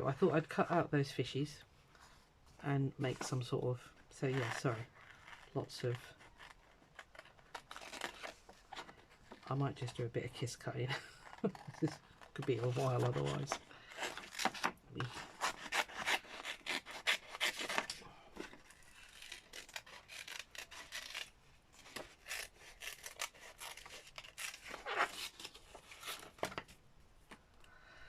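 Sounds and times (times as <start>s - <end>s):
paper rustling: 11.1s - 26.7s
scissors cutting paper: 11.4s - 18.0s, 18.6s - 21.3s, 21.9s - 26.4s.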